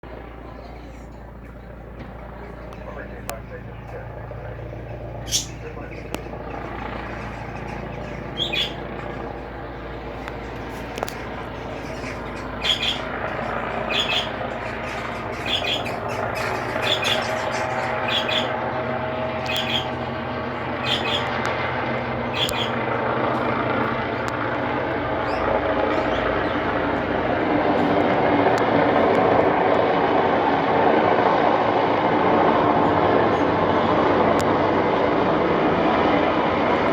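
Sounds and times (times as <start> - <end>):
helicopter engine and rotor drone: 0.0 - 36.9
bird squawking: 5.2 - 23.6, 25.0 - 26.9.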